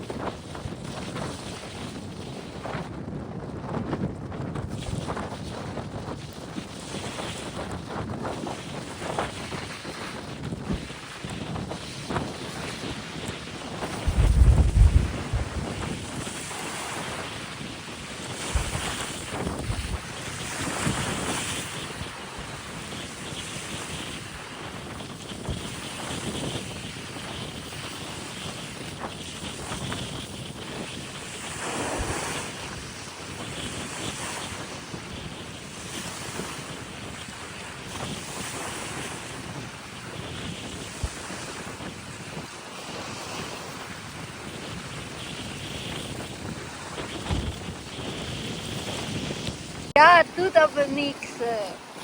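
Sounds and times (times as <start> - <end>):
wind buffeting microphone: 0.0 - 52.0
sea waves washing ashore: 10.8 - 52.0
low thuds: 14.0 - 16.0.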